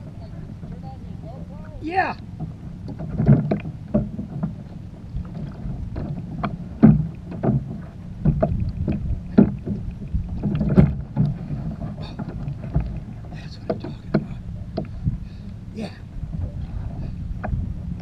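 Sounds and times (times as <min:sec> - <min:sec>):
water rumble: 0:00.0 - 0:18.0
wind: 0:00.0 - 0:18.0
knocks on kayak hull: 0:02.4 - 0:04.6, 0:05.2 - 0:13.0, 0:13.6 - 0:15.0.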